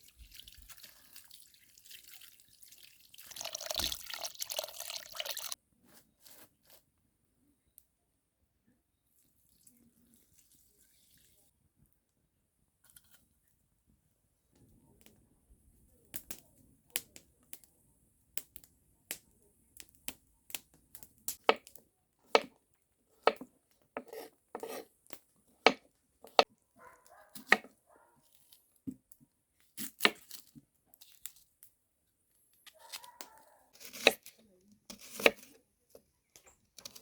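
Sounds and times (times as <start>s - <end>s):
knife chopping on cutting board: 22.3s - 22.5s, 23.2s - 24.9s, 25.6s - 26.5s, 27.4s - 27.7s, 33.8s - 34.2s, 35.0s - 35.5s.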